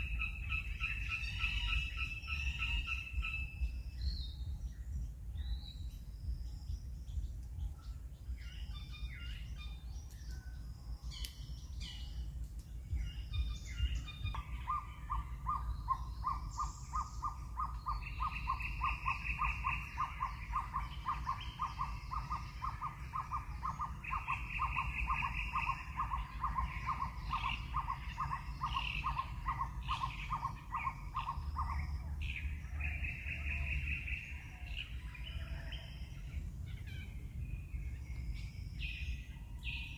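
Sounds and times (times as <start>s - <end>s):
low rumble: 1.8s - 35.4s
bird trilling: 13.1s - 31.9s.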